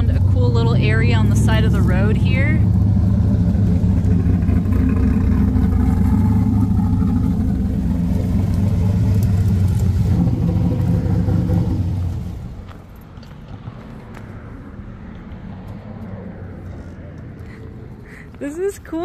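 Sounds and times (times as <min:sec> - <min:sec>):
car engine idling: 0:00.0 - 0:13.1.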